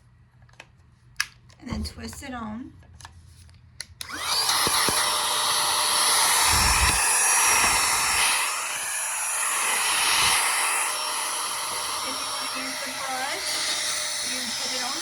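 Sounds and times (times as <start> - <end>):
vacuum motor whine and hiss: 4.0 - 15.0.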